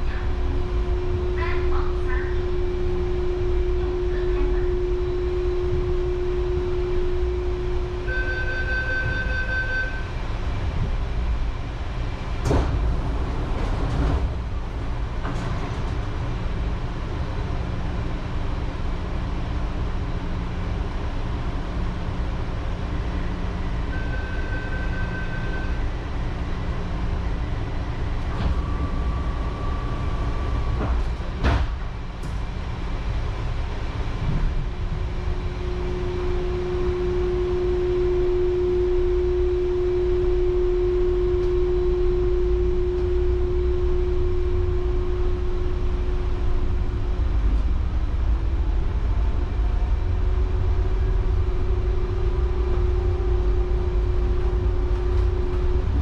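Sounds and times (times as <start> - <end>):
steady hum: 0.0 - 56.0
train running with low rumble: 0.0 - 56.0
short high beeping tones: 8.1 - 10.1.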